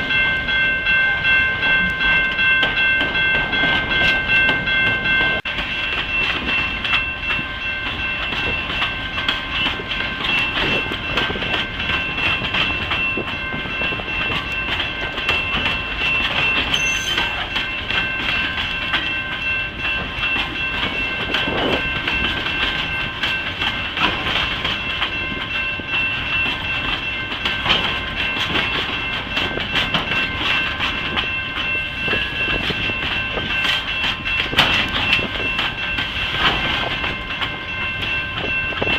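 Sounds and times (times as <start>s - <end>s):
train wheels clattering over rail joints: 2.4s - 38.9s
high-pitched ringing tone: 13.0s - 23.5s.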